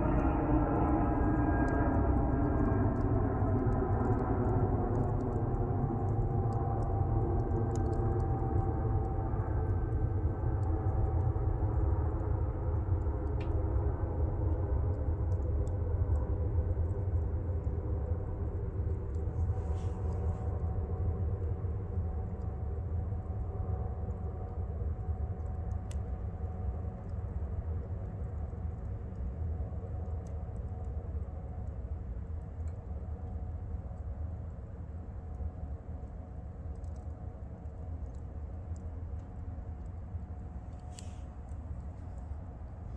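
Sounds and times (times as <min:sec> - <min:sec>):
airplane passing overhead: 0:00.0 - 0:29.3
wood fire crackling: 0:23.9 - 0:42.9.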